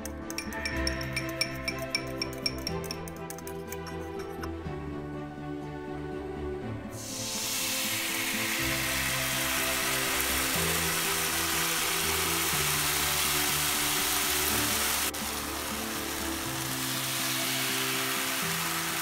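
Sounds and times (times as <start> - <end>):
liquid frying in hot oil: 7.0 - 19.0.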